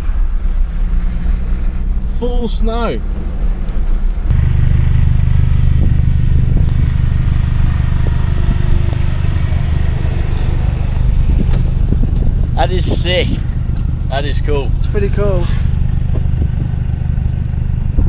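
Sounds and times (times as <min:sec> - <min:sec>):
vehicle engine and tyre drone: 0:00.0 - 0:18.0.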